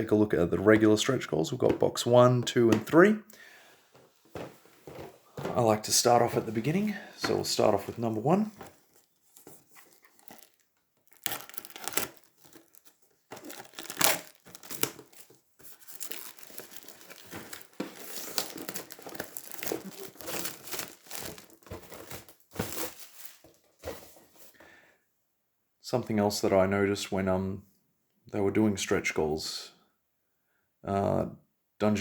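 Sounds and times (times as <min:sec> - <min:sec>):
plastic packaging crinkling and tearing: 0:08.0 - 0:23.6.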